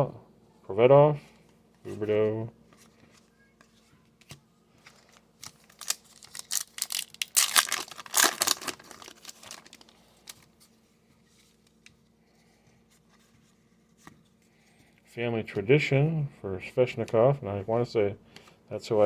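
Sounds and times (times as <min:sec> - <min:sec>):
foil wrapper crinkling and tearing: 0:05.1 - 0:10.5.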